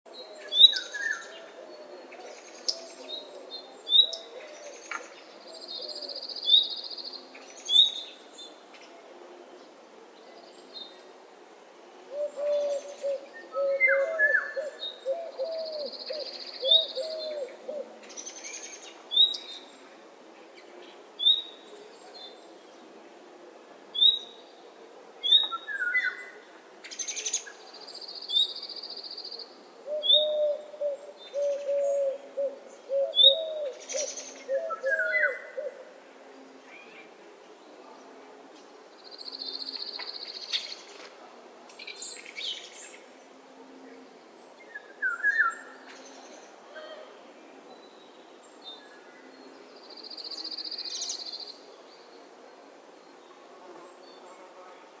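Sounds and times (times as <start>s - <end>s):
low-voiced bird hooting: 12.1s - 17.9s.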